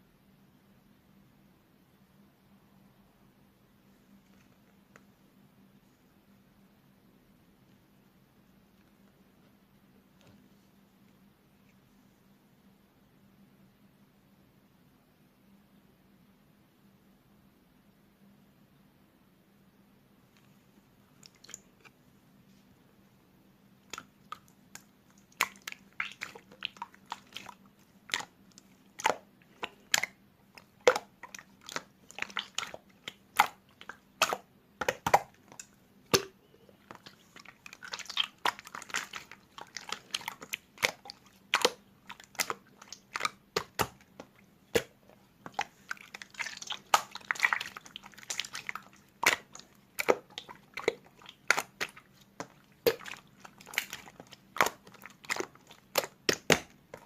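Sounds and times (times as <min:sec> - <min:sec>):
slime crackling: 0:23.8 - 0:57.0
slime squeezed with wet clicks: 0:23.9 - 0:57.0.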